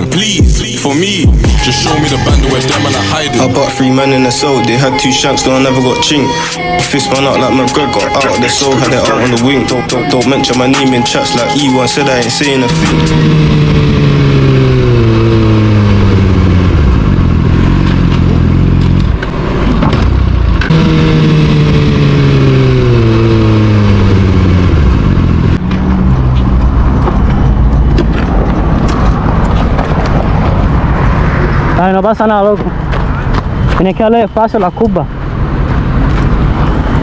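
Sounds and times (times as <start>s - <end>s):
motorcycle engine at speed: 8.7s - 33.8s
wind rush: 22.7s - 34.0s, 35.0s - 37.0s.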